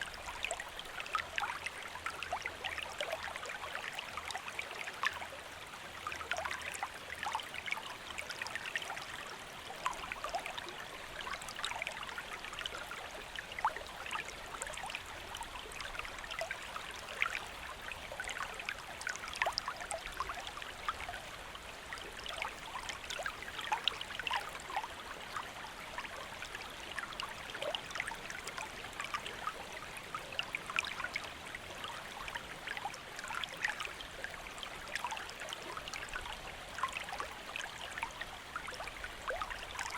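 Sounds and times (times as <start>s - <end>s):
shallow stream flowing: 0.0s - 39.9s.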